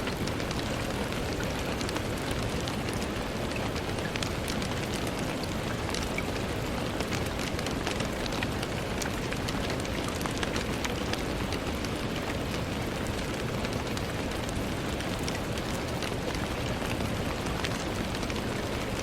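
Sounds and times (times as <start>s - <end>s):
rain on window glass: 0.0s - 19.0s.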